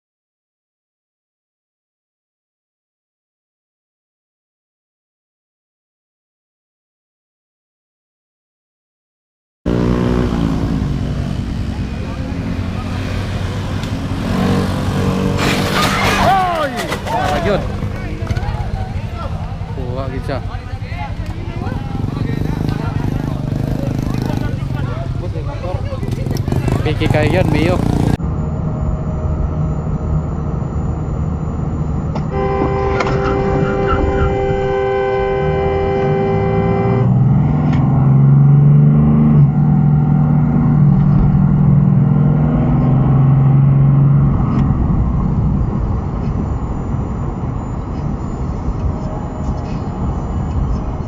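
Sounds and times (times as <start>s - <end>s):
low engine drone: 9.7s - 23.7s, 26.8s - 51.0s
traffic noise: 9.7s - 51.0s
car horn held: 32.2s - 37.1s.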